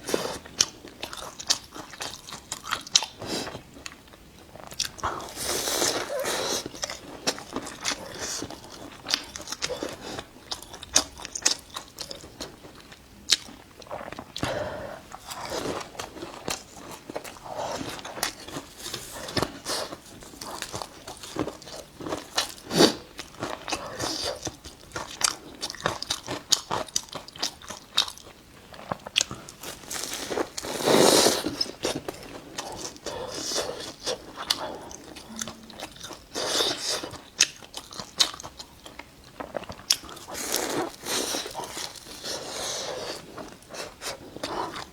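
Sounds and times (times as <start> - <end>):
biting and chewing pastry: 0.0 - 44.9
small crunches and crackles: 28.7 - 34.3.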